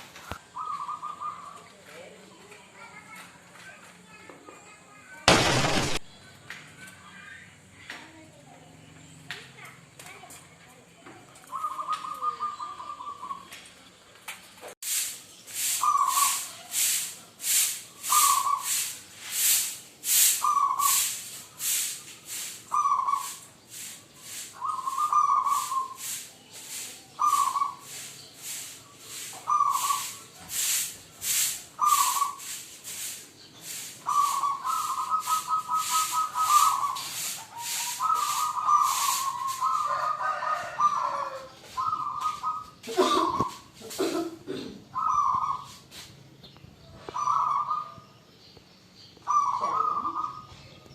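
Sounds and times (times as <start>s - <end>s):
doves cooing: 0.4s - 1.7s, 11.4s - 13.6s, 24.5s - 26.0s, 27.2s - 27.9s, 29.4s - 30.3s, 31.8s - 32.4s, 34.0s - 45.8s, 47.0s - 48.1s, 49.2s - 50.6s.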